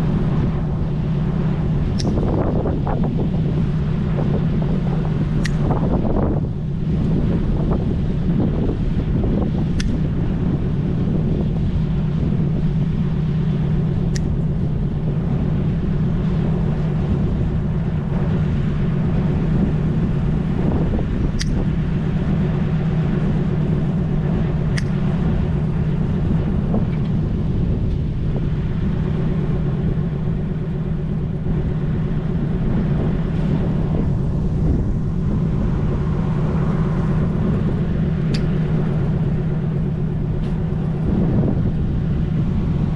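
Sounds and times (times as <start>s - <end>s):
loud steady low rumble: 0.0s - 42.9s
pruning shears cutting branches: 1.9s - 2.3s.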